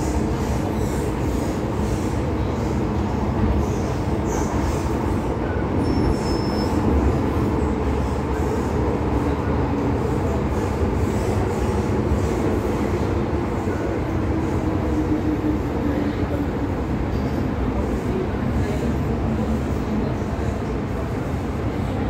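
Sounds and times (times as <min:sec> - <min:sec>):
metro train wheels rumbling: 0:00.0 - 0:22.0
faint wheel squeals: 0:05.8 - 0:07.0.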